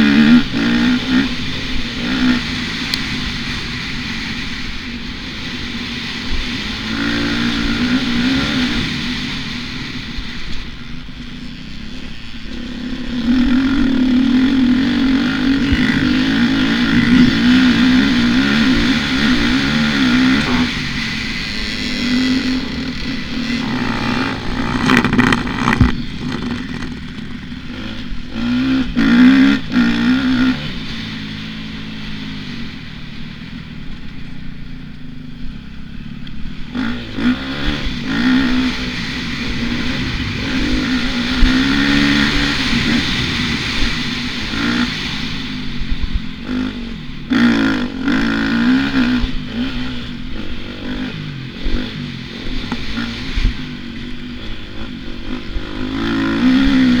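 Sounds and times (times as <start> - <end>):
dirt bike engine revving: 0.0 - 34.7, 35.5 - 57.0
steady rush of noise: 0.0 - 57.0
sharp knocks and clatters: 23.6 - 27.4.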